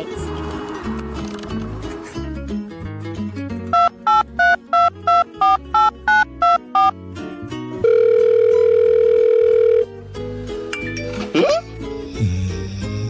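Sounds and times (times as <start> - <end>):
background music: 0.0 - 13.0
telephone keypad beeps: 3.8 - 6.9, 7.8 - 9.8.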